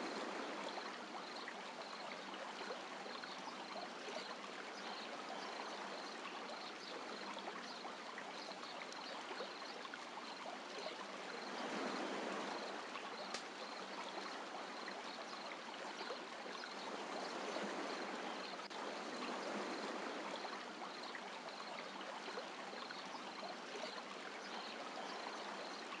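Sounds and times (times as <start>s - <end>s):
surf washing on a beach: 11.4s - 13.6s, 16.8s - 20.8s.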